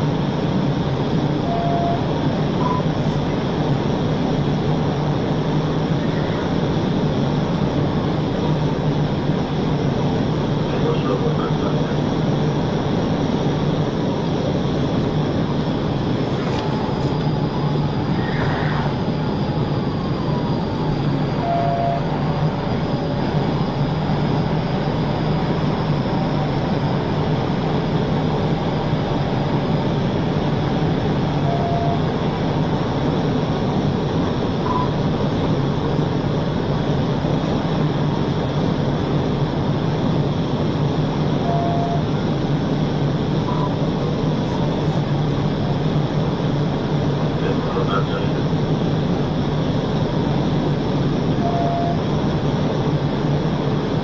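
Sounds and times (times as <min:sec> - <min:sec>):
low constant hum: 0:00.0 - 0:54.0
short electronic beep: 0:34.7 - 0:34.9, 0:51.4 - 0:52.0.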